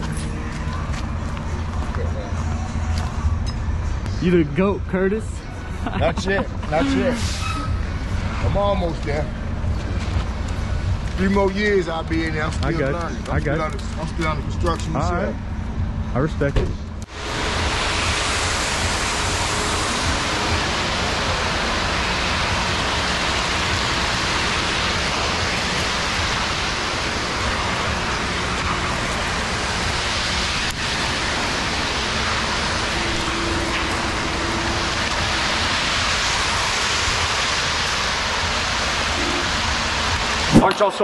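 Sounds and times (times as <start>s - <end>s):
steady rain: 17.1s - 41.0s.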